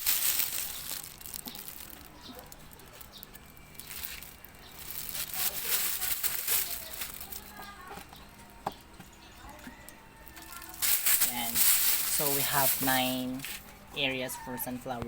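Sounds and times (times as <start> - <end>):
soil rustling into egg tray: 0.0 - 7.6, 10.7 - 13.6.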